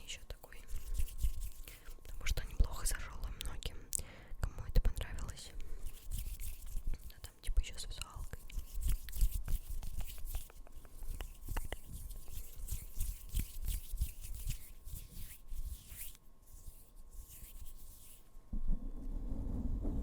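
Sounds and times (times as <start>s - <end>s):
low thuds on microphone: 18.5s - 20.0s.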